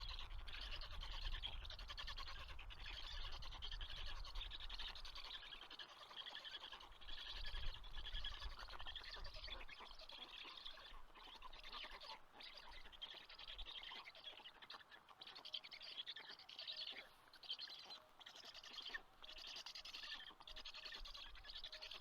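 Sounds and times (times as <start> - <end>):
baby birds chirping: 0.0 - 22.0.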